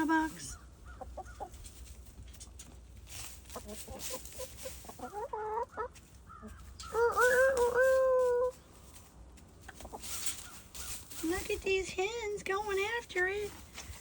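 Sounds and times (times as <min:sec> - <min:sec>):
chickens clucking: 0:00.0 - 0:14.0
long drawn-out chicken call: 0:05.0 - 0:08.6.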